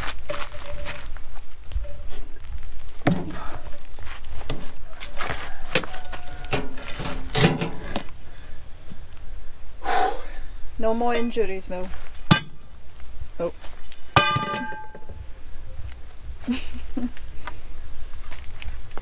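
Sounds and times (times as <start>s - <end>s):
stones and tools knocking: 12.3s - 12.7s, 14.2s - 15.2s.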